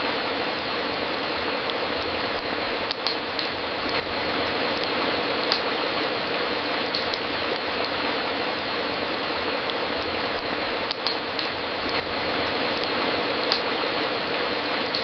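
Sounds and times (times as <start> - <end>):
wood fire crackling: 0.0 - 15.0
sharp fire pops: 2.0 - 4.1, 4.8 - 5.8, 10.0 - 12.1.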